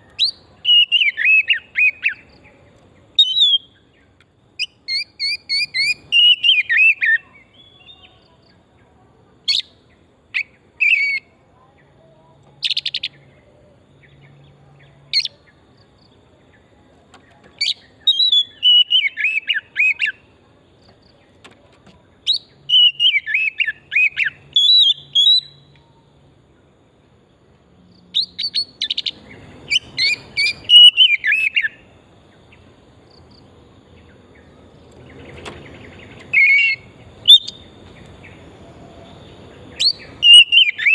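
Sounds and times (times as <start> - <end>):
bird singing whistled notes: 0.0 - 8.6, 9.4 - 11.9, 12.6 - 16.8, 17.5 - 20.4, 22.2 - 26.0, 28.0 - 40.9.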